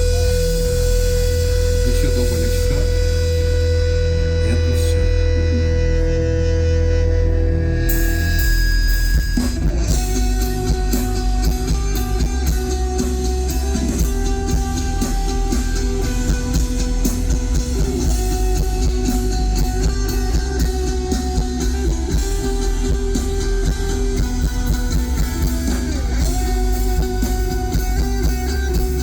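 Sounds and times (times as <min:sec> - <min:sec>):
bass guitar: 0:00.0 - 0:29.0
electric guitars: 0:00.0 - 0:29.0
drum kit beat: 0:07.9 - 0:29.0.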